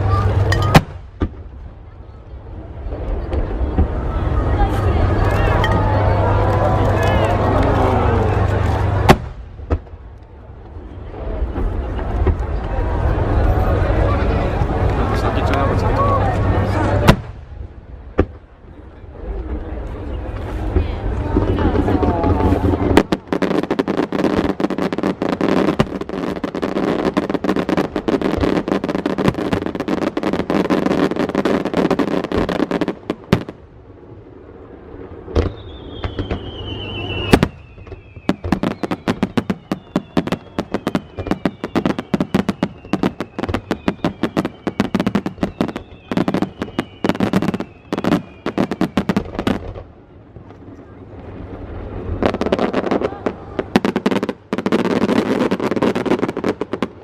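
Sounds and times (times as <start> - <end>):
firework bang: 0.0 - 1.6, 8.6 - 10.0, 16.7 - 18.5, 35.2 - 49.9
fireworks crackling: 0.0 - 57.0
firework whistle falling: 35.3 - 49.1.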